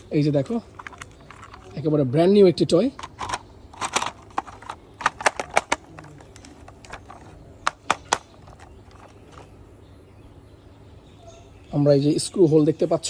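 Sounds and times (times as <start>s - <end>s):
plastic toy parts clicking: 0.0s - 1.8s, 2.8s - 9.5s.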